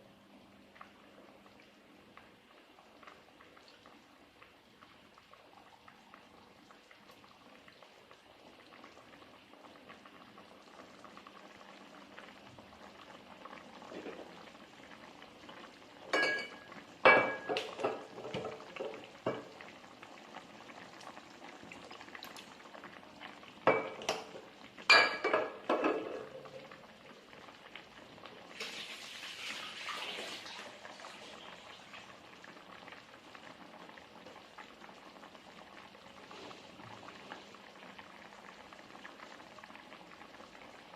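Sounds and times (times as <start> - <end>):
faint steady hiss: 0.0 - 40.9
cutlery clinking against dishes: 16.2 - 18.0.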